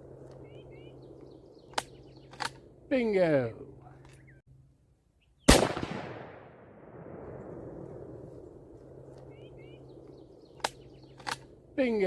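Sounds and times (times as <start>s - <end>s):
rifle shot with rolling echo: 5.5s - 8.4s.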